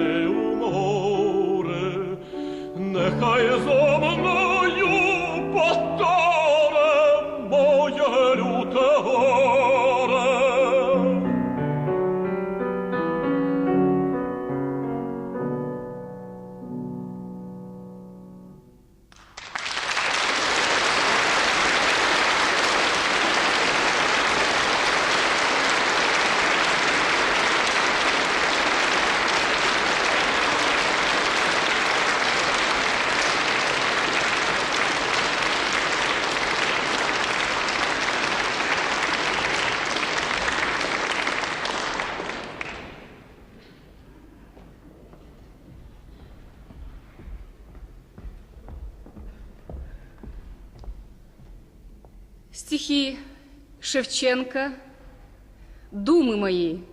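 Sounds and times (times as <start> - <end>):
piano playing: 0.0 - 19.2, 22.9 - 52.6
audience applause: 19.2 - 43.3.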